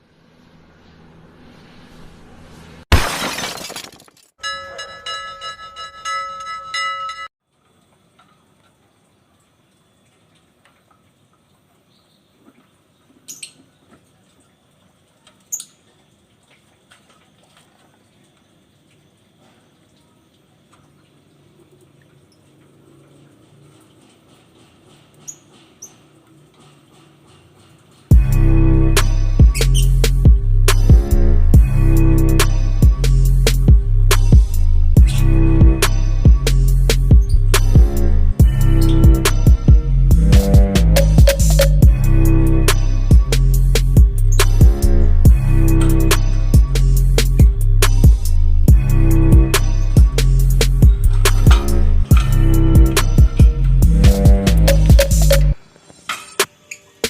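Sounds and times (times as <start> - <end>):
glass shattering crash: 2.9 - 4.4
ringing bell-like tones: 4.4 - 7.3.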